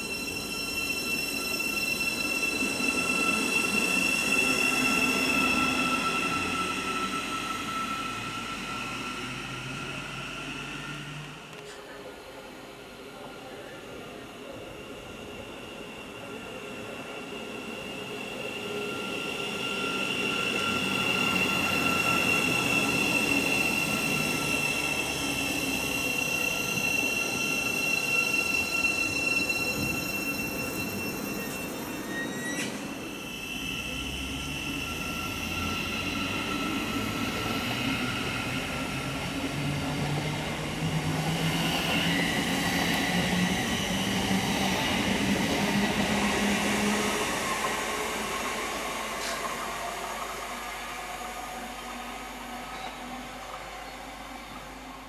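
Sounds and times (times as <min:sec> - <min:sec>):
high-pitched whining tones: 0:15.0 - 0:50.9
train wheels rumbling on rail: 0:18.0 - 0:55.0.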